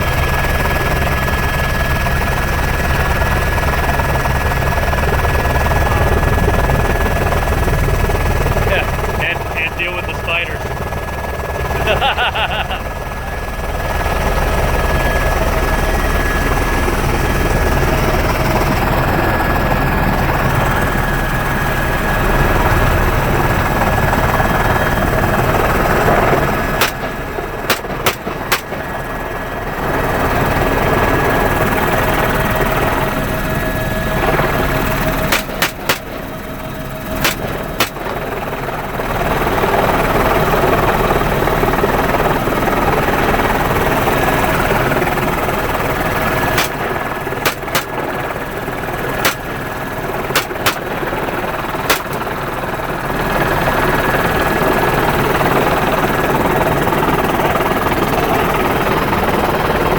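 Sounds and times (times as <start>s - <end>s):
helicopter rotor and engine: 0.0s - 59.9s
rifle shots: 26.8s - 29.4s, 35.3s - 38.7s, 46.6s - 48.4s, 49.2s - 49.6s, 50.4s - 51.3s, 51.9s - 52.3s.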